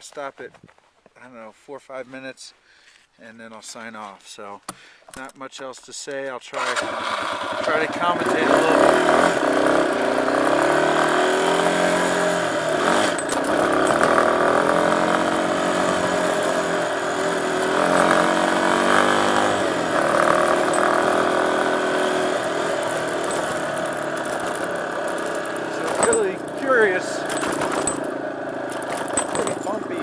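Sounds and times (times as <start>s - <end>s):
dirt bike engine revving: 6.6s - 30.0s.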